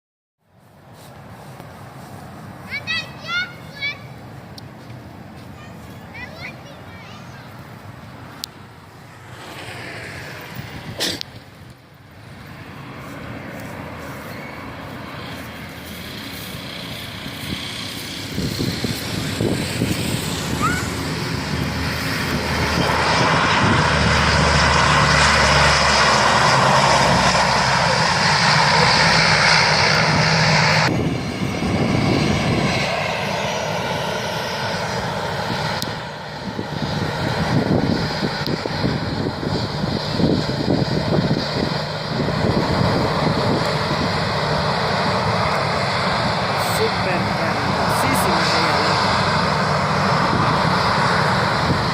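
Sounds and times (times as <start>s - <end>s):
airplane engines landing: 0.4s - 51.9s
wide rushing noise: 7.8s - 34.0s.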